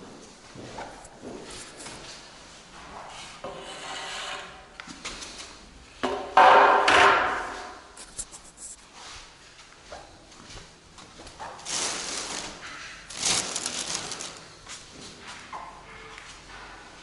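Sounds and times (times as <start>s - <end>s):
rough scraping with squeal: 3.4s - 4.7s.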